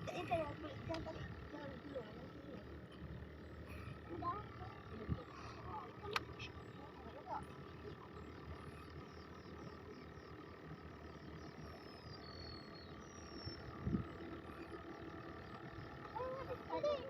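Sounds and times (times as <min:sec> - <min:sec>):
high whistled calls: 0:11.6 - 0:13.8.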